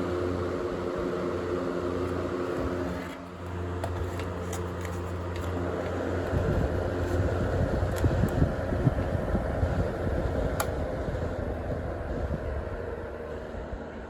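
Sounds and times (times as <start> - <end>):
table fan motor hum: 0.0 - 14.0.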